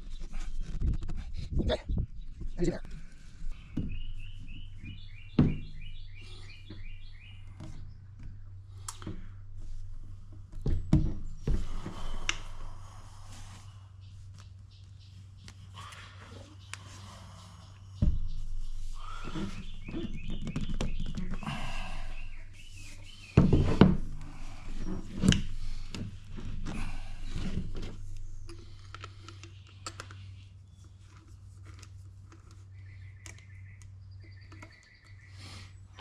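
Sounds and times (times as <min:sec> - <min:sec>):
knocks and scraping of plastic pipe: 0:00.0 - 0:12.7, 0:18.0 - 0:35.2
steady low hum: 0:00.0 - 0:20.3.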